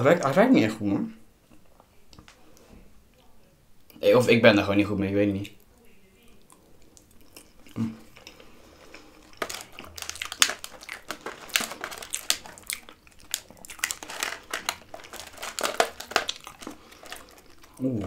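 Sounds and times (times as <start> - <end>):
wet chewing: 6.3 - 18.0.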